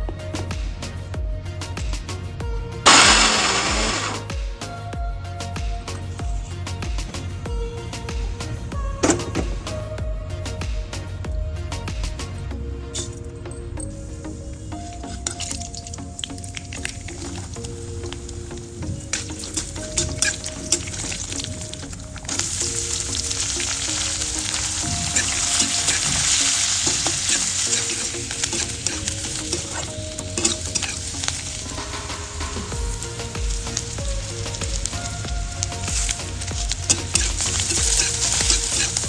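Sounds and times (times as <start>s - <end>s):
onions sizzling in hot oil: 2.9s - 4.3s, 14.3s - 39.0s.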